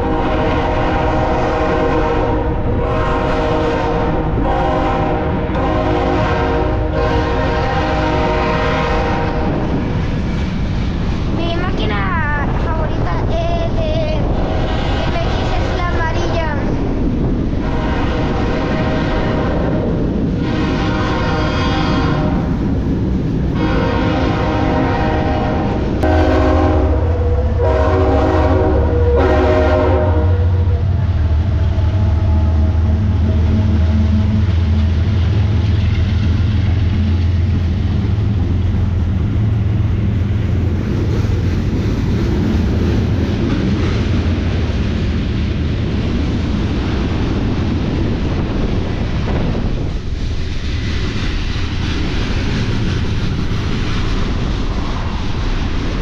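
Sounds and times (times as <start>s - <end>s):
locomotive air horn blasts: 0.0s - 9.6s, 17.6s - 19.7s, 20.4s - 22.4s, 23.6s - 30.9s
train rumbling by: 0.0s - 56.0s.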